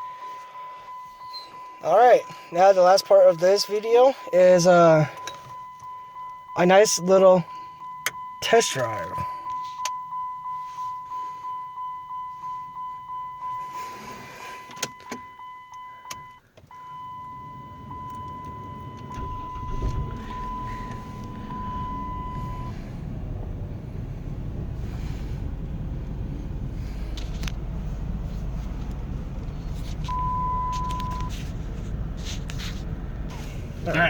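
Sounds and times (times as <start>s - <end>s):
car warning chime pinging: 0.0s - 31.5s, 33.3s - 34.0s
car engine cranking and starting: 12.3s - 34.0s
car engine idling: 16.4s - 34.0s.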